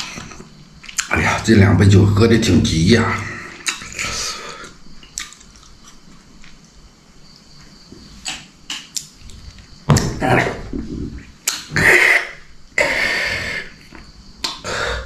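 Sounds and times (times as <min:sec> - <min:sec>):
mouth clicks and smacks: 0:00.0 - 0:01.2, 0:03.2 - 0:06.7, 0:08.2 - 0:10.2, 0:11.2 - 0:13.0, 0:13.8 - 0:14.9.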